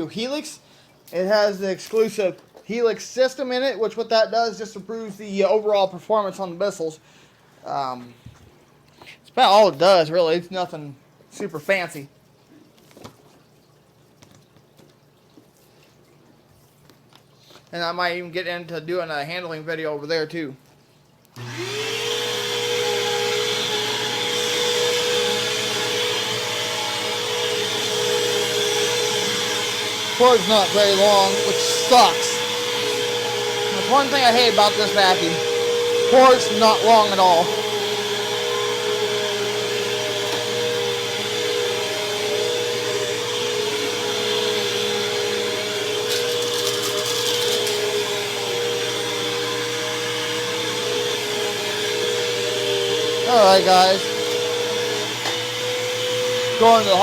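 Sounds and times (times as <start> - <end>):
vacuum cleaner running: 21.4 - 57.0.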